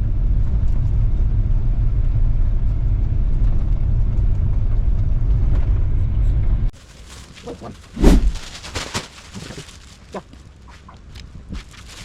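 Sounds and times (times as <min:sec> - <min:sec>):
road and wind noise from car: 0:00.0 - 0:06.8.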